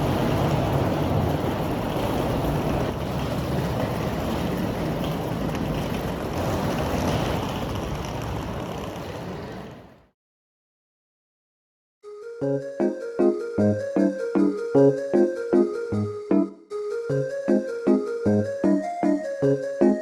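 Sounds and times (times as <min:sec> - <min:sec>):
rushing rumbling noise: 0:00.0 - 0:10.0.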